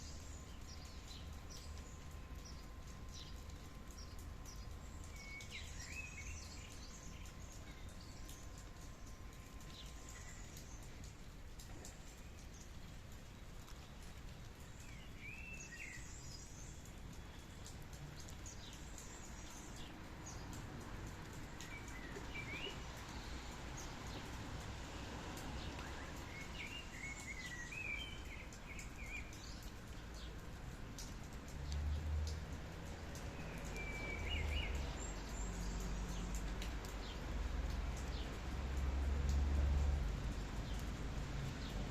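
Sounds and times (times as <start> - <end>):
light rain hiss: 0.0 - 41.9
water drips: 0.0 - 41.9.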